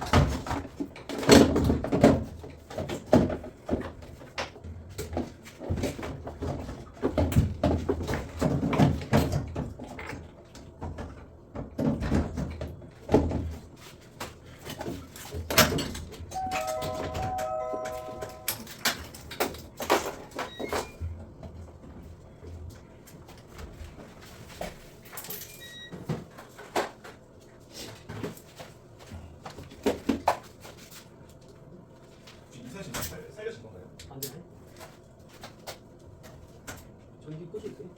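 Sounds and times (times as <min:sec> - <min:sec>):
short steady tones: 0:16.4 - 0:18.7.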